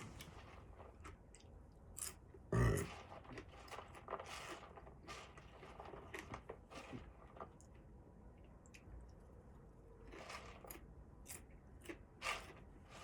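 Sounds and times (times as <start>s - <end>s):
man burping loudly: 2.5s - 2.9s.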